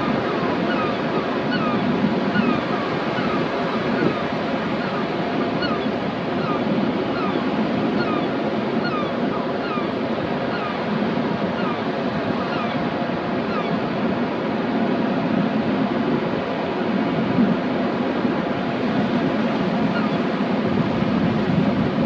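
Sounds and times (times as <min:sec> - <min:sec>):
birds giving falling calls: 0:00.0 - 0:10.8
waves breaking on shore: 0:00.0 - 0:22.0
wind: 0:00.0 - 0:22.0.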